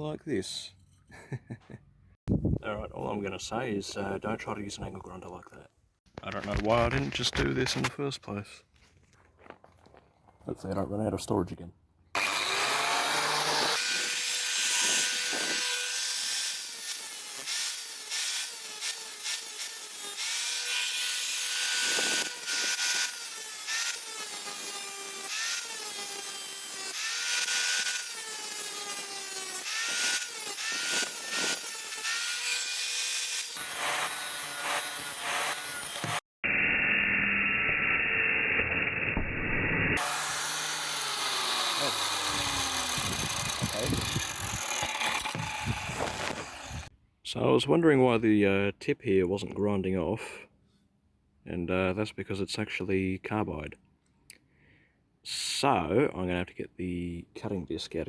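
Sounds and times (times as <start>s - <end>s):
angle grinder grinding steel: 12.2s - 46.9s.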